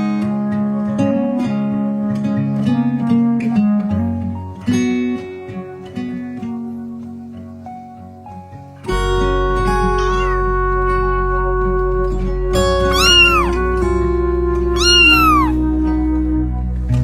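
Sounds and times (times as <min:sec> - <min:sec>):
background music: 0:00.0 - 0:17.0
cat meowing: 0:09.8 - 0:10.8, 0:12.8 - 0:13.7, 0:14.8 - 0:15.6.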